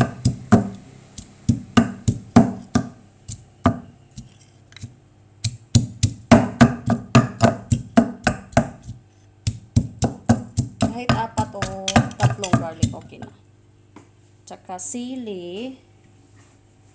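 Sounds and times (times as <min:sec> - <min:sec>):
pestle pounding in mortar: 0:00.0 - 0:13.2.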